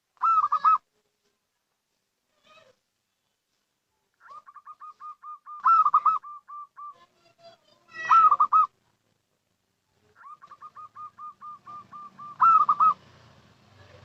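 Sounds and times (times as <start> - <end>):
dove cooing: 0.2 - 0.8, 4.2 - 7.1, 8.0 - 8.7, 10.0 - 13.2.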